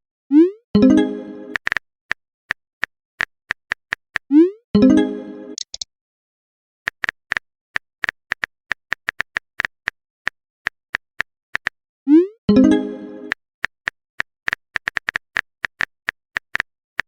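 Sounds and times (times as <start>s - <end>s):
phone keyboard typing clicks: 5.6s - 5.8s, 6.9s - 10.0s, 13.3s - 16.7s.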